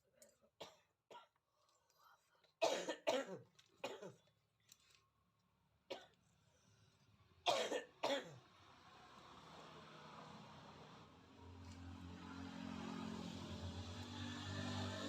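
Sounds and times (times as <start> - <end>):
person coughing: 2.6 - 4.2, 7.5 - 8.4.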